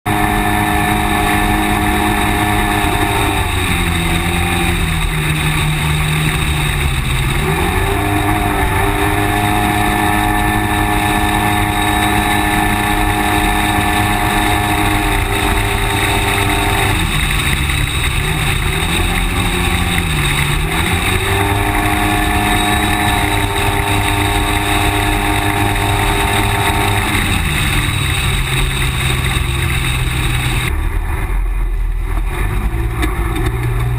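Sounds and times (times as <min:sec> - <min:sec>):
off-road vehicle engine driving: 0:00.0 - 0:33.9.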